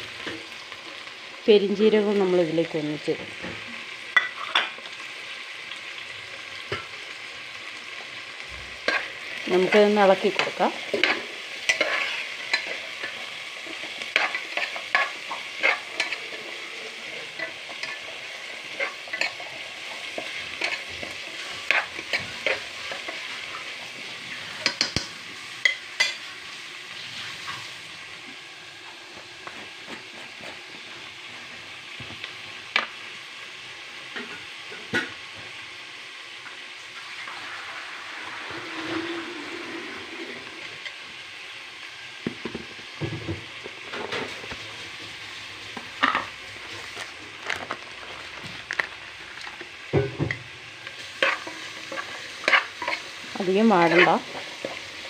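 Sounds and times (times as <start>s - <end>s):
food sizzling in hot oil: 0.0s - 55.0s
spoon scraping and tapping pot: 24.6s - 26.2s.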